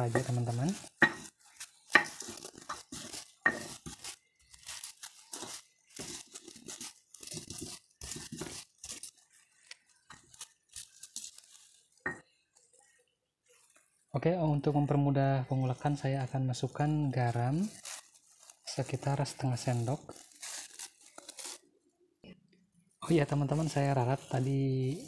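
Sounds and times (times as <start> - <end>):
stone pestle crushing chillies: 0.0 - 9.2.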